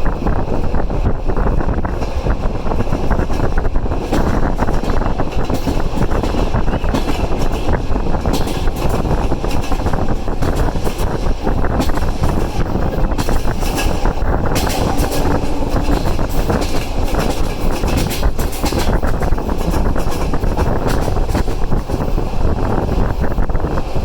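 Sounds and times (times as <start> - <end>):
train wheels rumbling on rail: 0.0 - 24.0
rushing air: 11.2 - 19.0.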